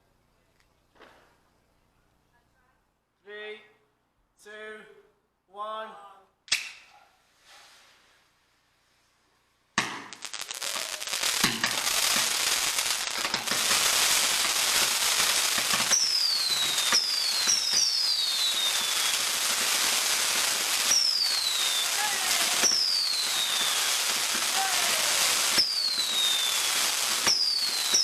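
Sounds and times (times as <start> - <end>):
fireworks crackling: 0.9 - 1.5, 7.4 - 28.0
firework bang: 9.8 - 28.0
fireworks whistling: 9.8 - 28.0.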